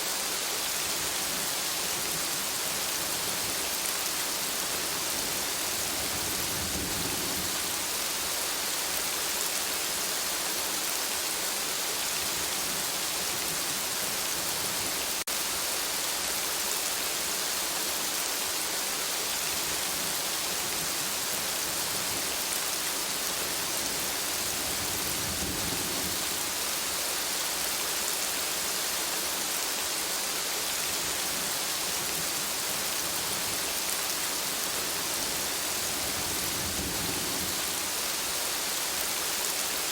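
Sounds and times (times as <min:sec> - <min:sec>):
steady rain falling: 0:00.0 - 0:39.9
distant thunder rumbles: 0:05.6 - 0:07.9.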